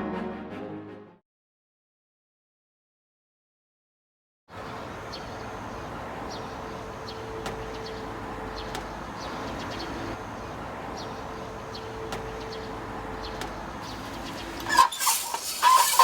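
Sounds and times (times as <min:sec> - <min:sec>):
small birds chirping: 0:04.8 - 0:16.0.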